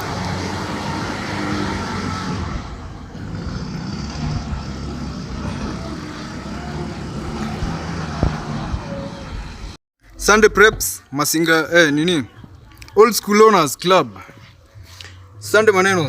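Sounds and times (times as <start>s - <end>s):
car engine running: 0.0s - 9.8s.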